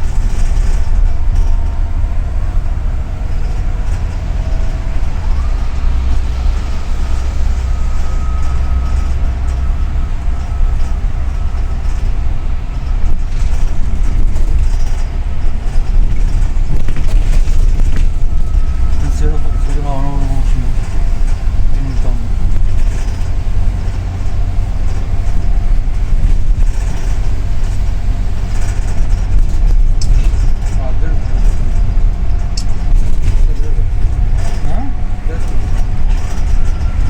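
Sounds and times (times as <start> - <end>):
faint rising whine: 0.0 - 29.3
bus engine and road rumble: 0.0 - 37.0.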